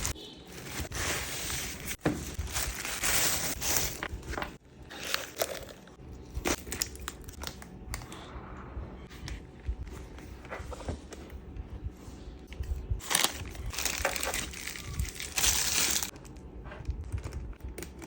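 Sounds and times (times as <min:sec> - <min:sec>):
plastic packaging crinkling: 0:00.0 - 0:04.0, 0:06.4 - 0:07.8, 0:13.0 - 0:18.0.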